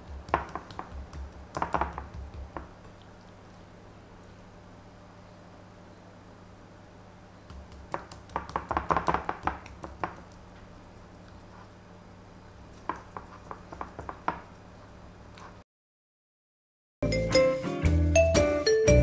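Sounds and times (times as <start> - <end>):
hands patting meat: 0.0 - 3.2, 7.5 - 11.8, 12.6 - 14.7.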